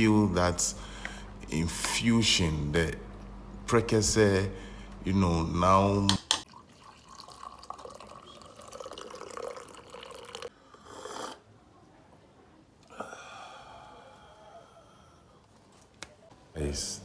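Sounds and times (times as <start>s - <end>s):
liquid dripping: 6.1s - 10.5s.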